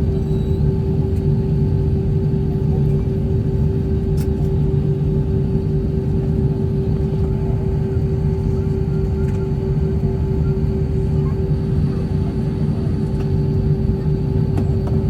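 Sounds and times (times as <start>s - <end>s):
aircraft cabin rumble: 0.0s - 15.0s
mid-pitched hum: 0.0s - 15.0s.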